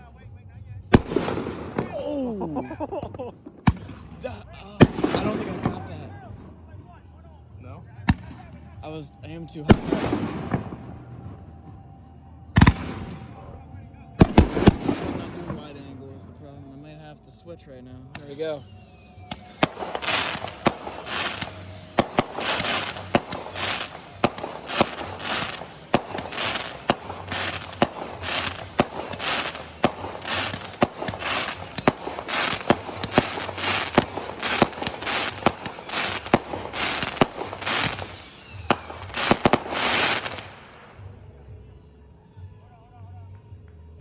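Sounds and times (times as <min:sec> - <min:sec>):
fireworks crackling: 0:00.9 - 0:06.7, 0:08.1 - 0:11.4, 0:12.6 - 0:13.6, 0:14.2 - 0:16.9, 0:18.2 - 0:41.2
fireworks bangs: 0:00.9 - 0:06.9, 0:08.1 - 0:11.6, 0:12.6 - 0:13.6, 0:14.2 - 0:17.0, 0:18.2 - 0:41.2
falling firework whistles: 0:01.0 - 0:04.2, 0:18.2 - 0:41.1.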